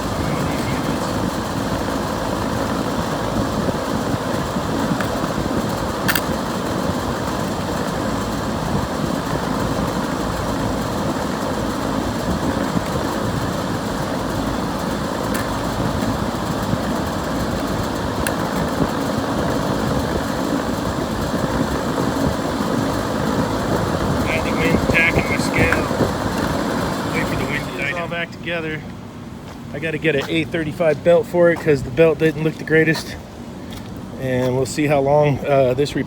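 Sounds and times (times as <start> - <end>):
air conditioning unit running: 0.0 - 36.0.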